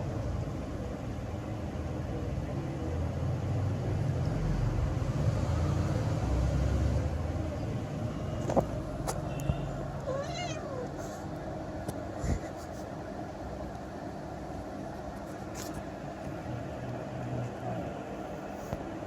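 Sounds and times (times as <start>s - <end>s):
cat meowing: 9.4s - 11.2s.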